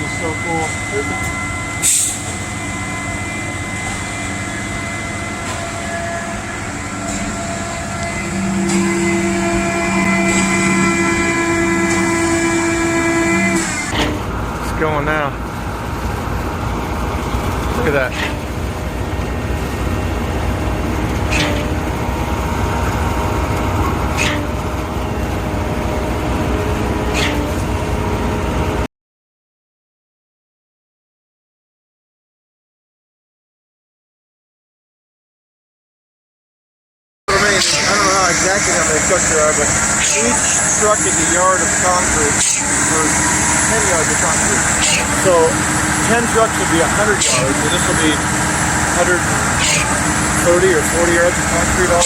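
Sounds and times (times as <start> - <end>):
diesel truck engines running: 0.0 - 28.9, 37.3 - 52.0
short sharp high sound: 0.6 - 13.9, 37.3 - 52.0
short loud hiss: 1.8 - 2.4.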